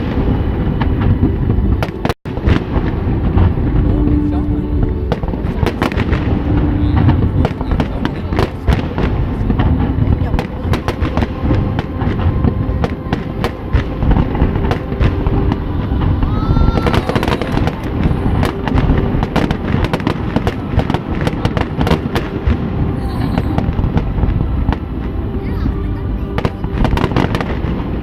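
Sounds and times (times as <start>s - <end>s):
fireworks booming and crackling: 0.0s - 28.0s
heavy rumble: 0.0s - 28.0s.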